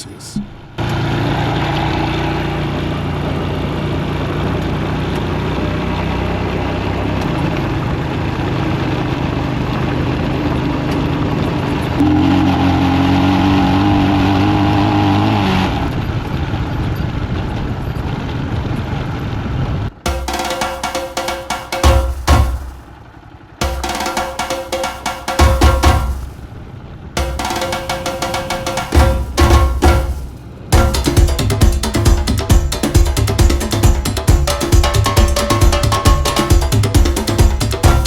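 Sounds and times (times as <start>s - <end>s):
wind and road noise: 0.0s - 20.0s, 26.2s - 27.2s
motorcycle engine running: 27.2s - 38.0s.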